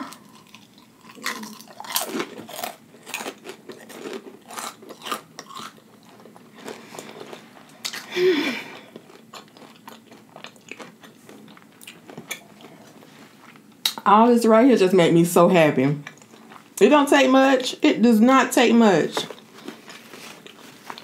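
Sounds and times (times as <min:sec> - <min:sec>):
chewing food with wet smacks: 0:00.0 - 0:08.1, 0:08.7 - 0:14.0.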